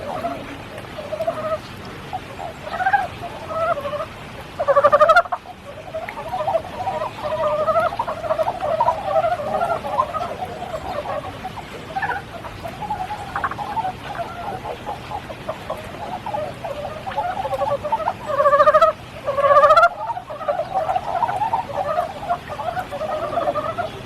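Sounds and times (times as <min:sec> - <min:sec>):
frog trilled calls: 0:00.0 - 0:24.0
frogs croaking: 0:00.0 - 0:24.0
light rain falling: 0:00.0 - 0:24.0.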